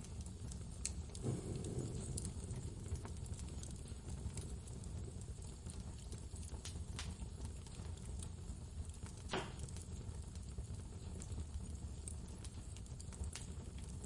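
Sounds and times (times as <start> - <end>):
wood fire crackling and popping: 0.0 - 14.0
blizzard wind rumble: 1.2 - 5.5.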